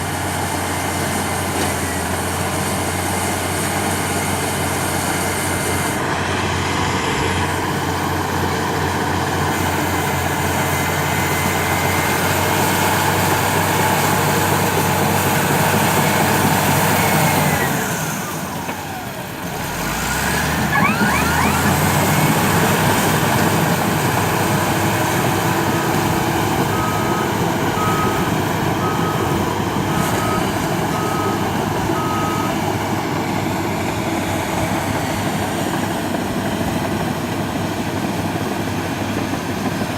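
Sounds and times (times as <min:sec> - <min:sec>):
bulldozer diesel engine running: 0:00.0 - 0:39.9
reversing alarm beeps: 0:20.7 - 0:21.8, 0:25.9 - 0:32.6.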